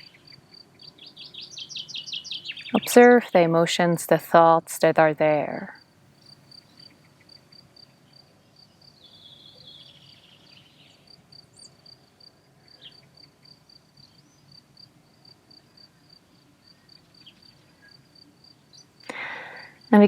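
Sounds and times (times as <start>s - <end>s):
faint bird chirps: 0.0s - 2.9s, 6.2s - 14.6s
cricket chirping: 5.8s - 19.9s.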